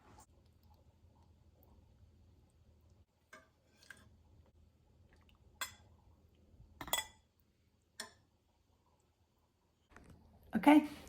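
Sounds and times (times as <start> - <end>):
cutlery and dishes clinking: 6.8 - 7.3.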